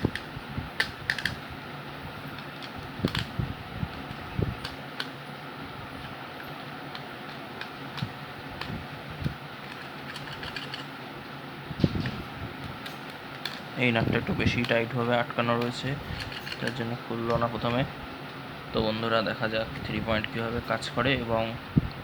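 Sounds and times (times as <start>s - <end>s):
steady background hum: 0.0s - 22.0s
hand tools clicking and knocking: 15.5s - 17.4s.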